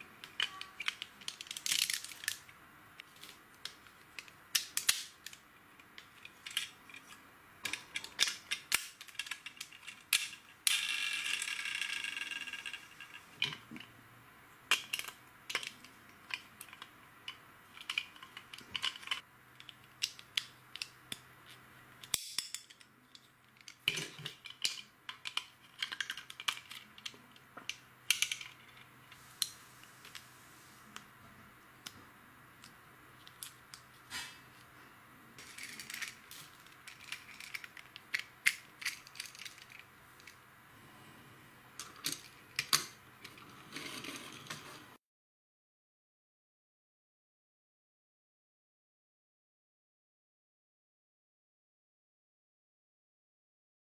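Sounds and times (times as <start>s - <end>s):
plastic pieces clicking and clattering: 0.2s - 2.5s, 3.2s - 13.7s, 14.7s - 21.0s, 22.0s - 28.9s, 35.4s - 40.4s.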